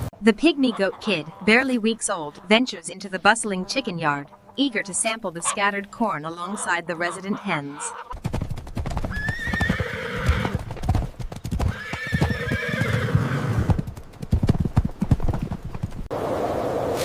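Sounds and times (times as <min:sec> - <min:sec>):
hooves on hard ground: 0:00.0 - 0:16.1
wavering animal cries: 0:00.6 - 0:08.2, 0:11.7 - 0:13.7.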